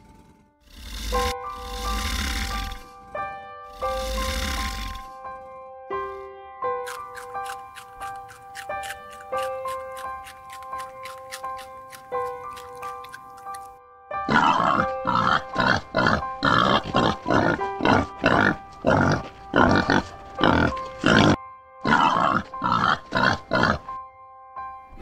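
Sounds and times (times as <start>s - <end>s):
pigs grunting: 0.0s - 5.6s, 14.3s - 24.0s
light background music: 0.0s - 25.0s.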